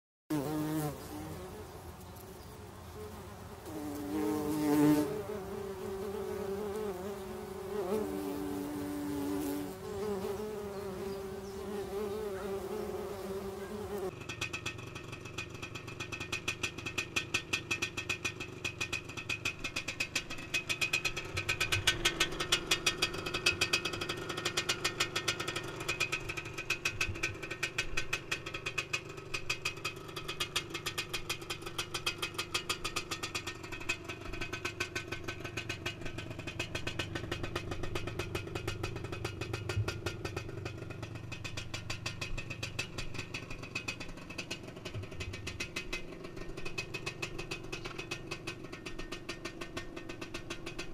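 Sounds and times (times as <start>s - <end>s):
two-stroke engine idling: 5.2s - 50.9s.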